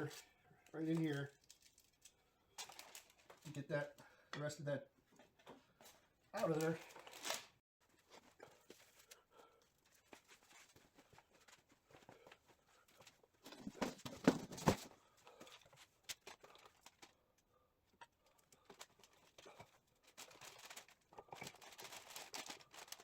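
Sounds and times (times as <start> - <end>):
rustling: 5.8 - 17.2, 18.3 - 23.0.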